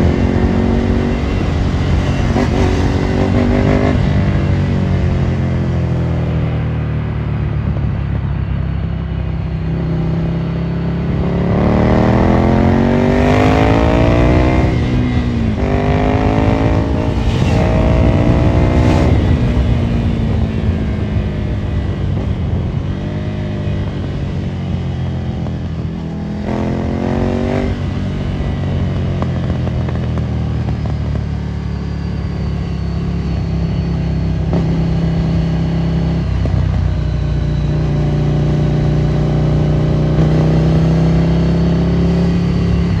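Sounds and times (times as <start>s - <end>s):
motorcycle accelerating through gears: 0.0s - 43.0s.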